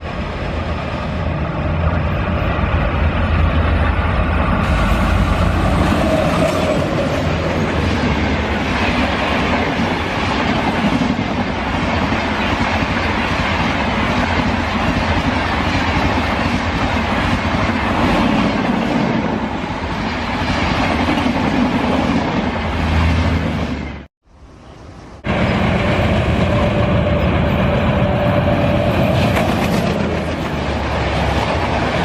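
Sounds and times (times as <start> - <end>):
train wheels on rails: 0.0 - 24.1, 25.1 - 32.0.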